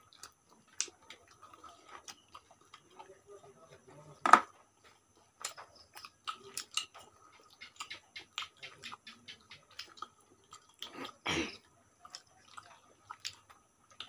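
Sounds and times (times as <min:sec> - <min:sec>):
wet chewing and lip smacks: 0:04.8 - 0:11.2, 0:12.0 - 0:14.0.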